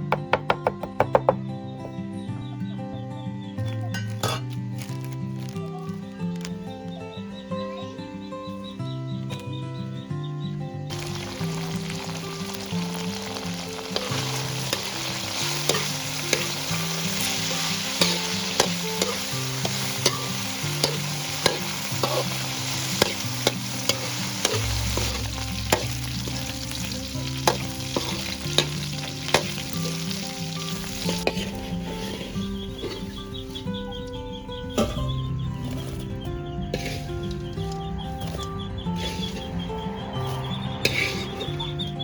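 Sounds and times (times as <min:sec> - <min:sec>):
food sizzling in a pan: 0:10.9 - 0:33.8, 0:36.7 - 0:37.5, 0:39.0 - 0:41.6
utensil scraping and knocking pan: 0:36.8 - 0:39.6, 0:40.8 - 0:41.5.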